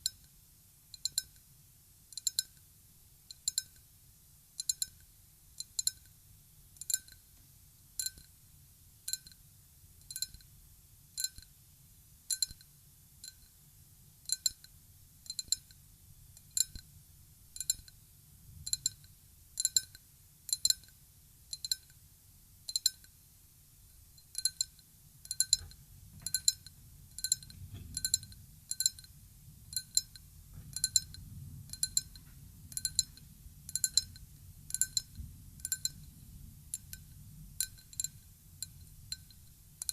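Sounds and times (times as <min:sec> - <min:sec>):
glass tapped ringing: 0:13.3 - 0:13.5, 0:25.3 - 0:29.1, 0:32.8 - 0:33.2
faint low rumble: 0:25.1 - 0:39.9.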